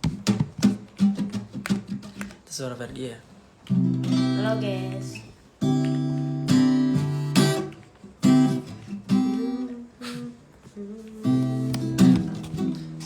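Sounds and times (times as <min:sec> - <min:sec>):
acoustic guitar strumming chords: 0:03.7 - 0:13.0.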